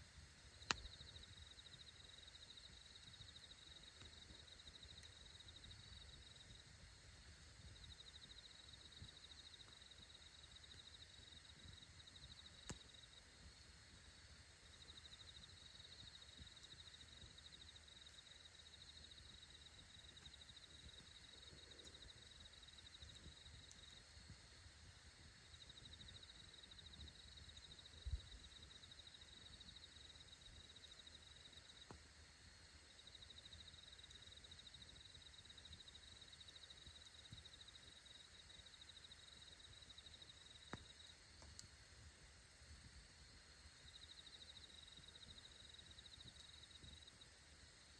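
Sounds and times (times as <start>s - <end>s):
high pulsing insect trill: 0.5s - 7.0s, 7.6s - 47.9s
campfire pops: 0.6s - 1.1s, 12.5s - 13.1s, 40.7s - 41.8s.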